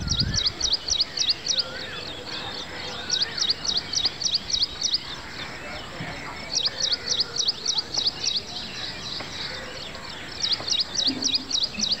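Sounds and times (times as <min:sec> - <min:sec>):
outdoor background noise: 0:00.0 - 0:12.0
songbird chirping: 0:00.0 - 0:12.0.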